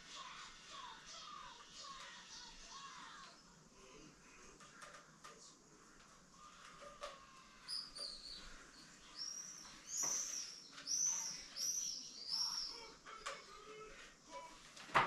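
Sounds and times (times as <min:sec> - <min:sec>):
small bird chirping: 0:06.4 - 0:13.8.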